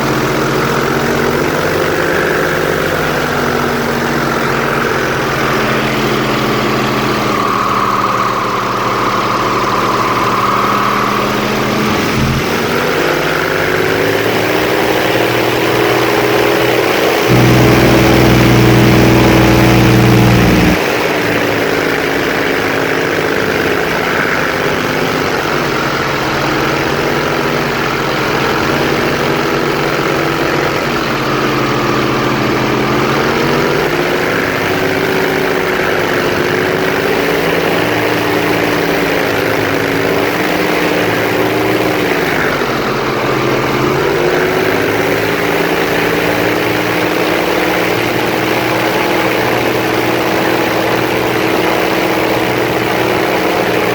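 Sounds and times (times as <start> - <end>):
airboat engine and propeller: 0.0 - 53.9.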